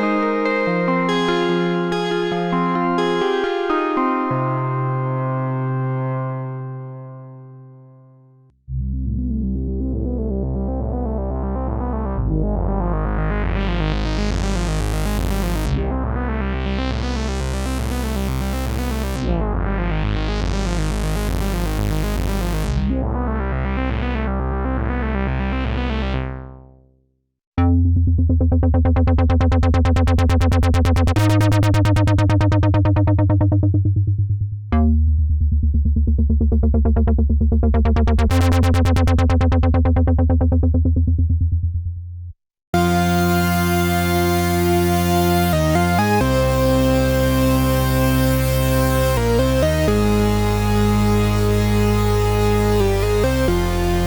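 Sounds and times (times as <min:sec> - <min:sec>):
buzzy synthesizer pulsing chords: 0:00.0 - 0:07.8, 0:08.8 - 0:26.6, 0:28.4 - 0:34.1, 0:37.7 - 0:41.2, 0:42.8 - 0:54.0
synthesizer bass with arpeggio: 0:00.0 - 0:26.9, 0:27.6 - 0:54.0.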